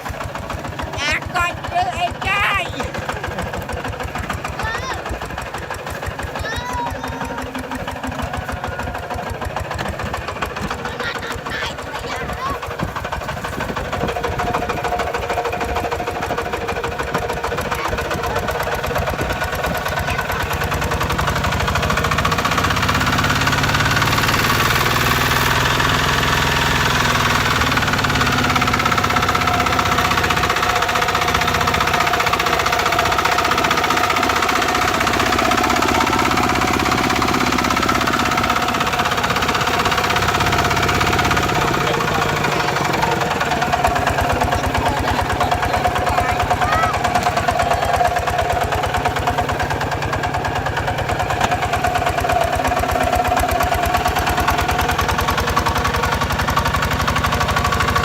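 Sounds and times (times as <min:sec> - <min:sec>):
diesel engine knocking steadily: 0:00.0 - 0:58.0.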